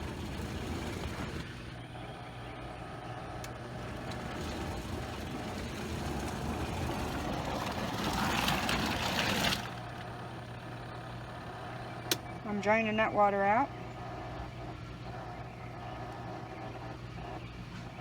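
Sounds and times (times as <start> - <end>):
water churning: 0.0 - 1.8, 3.6 - 11.0
washing machine motor hum: 0.0 - 18.0.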